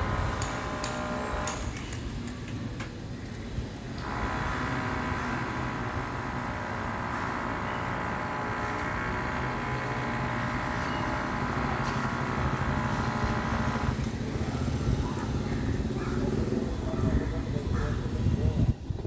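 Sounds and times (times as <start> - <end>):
high whine: 0.0 - 2.4
machinery engine rumble: 0.0 - 19.0.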